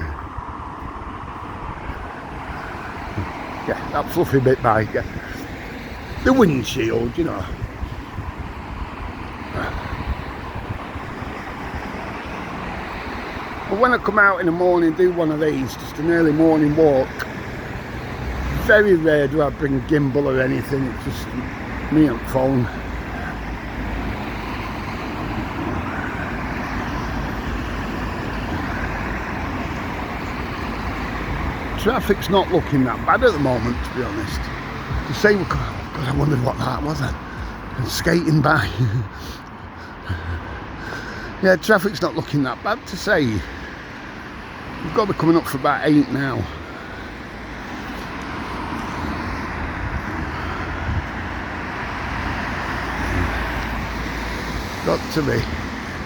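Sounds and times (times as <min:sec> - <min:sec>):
wind buffeting microphone: 0:00.0 - 0:14.3, 0:20.9 - 0:41.4, 0:47.4 - 0:56.0
road traffic noise: 0:00.0 - 0:56.0.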